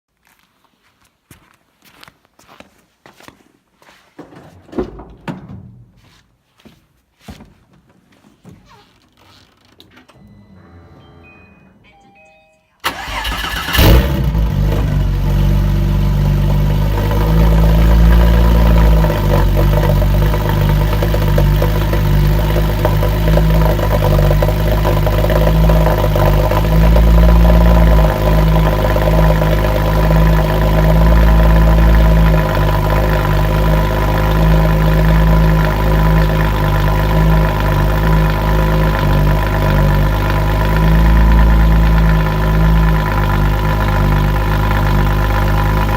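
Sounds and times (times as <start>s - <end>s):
car engine starting and idling: 12.8s - 45.9s.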